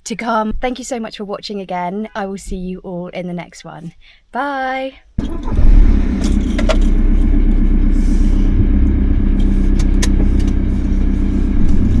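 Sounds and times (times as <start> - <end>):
van engine and road rumble: 5.2 - 12.0.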